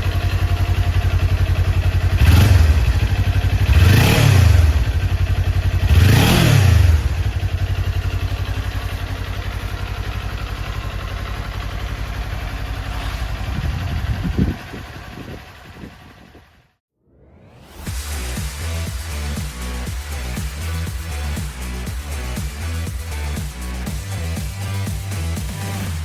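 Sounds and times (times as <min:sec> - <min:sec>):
motorcycle engine revving and idling: 0:00.0 - 0:16.8, 0:17.9 - 0:26.0.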